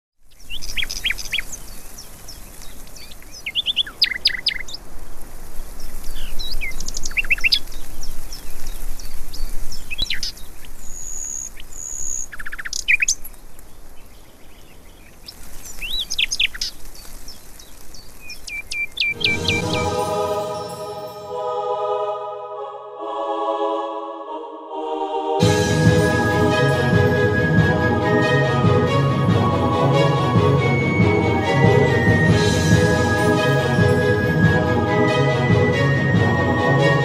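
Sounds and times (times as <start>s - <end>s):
songbirds chirping and singing: 0.2s - 4.8s, 5.8s - 21.4s
music: 19.1s - 37.0s.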